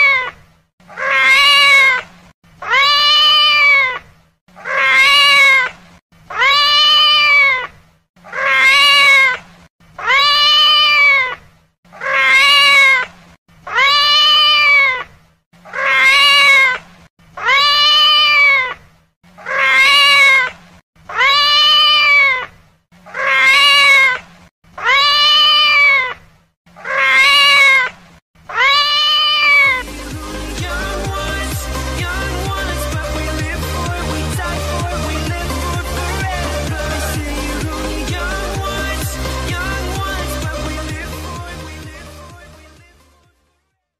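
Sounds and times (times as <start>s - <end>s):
cat meowing: 0.0s - 2.0s, 2.6s - 5.7s, 6.3s - 9.4s, 10.0s - 11.4s, 12.0s - 13.0s, 13.7s - 15.1s, 15.7s - 16.8s, 17.4s - 18.8s, 19.4s - 20.5s, 21.1s - 22.5s, 23.1s - 24.2s, 24.8s - 26.2s, 26.8s - 27.9s, 28.5s - 29.8s
electronic music with steady beat: 29.8s - 43.2s.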